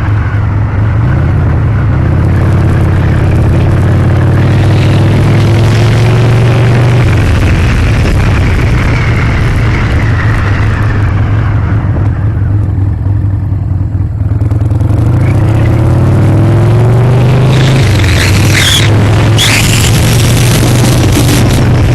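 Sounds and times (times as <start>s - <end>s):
wind rushing over microphone: 0.0s - 12.8s, 14.9s - 21.9s
motorcycle engine running: 0.0s - 21.9s.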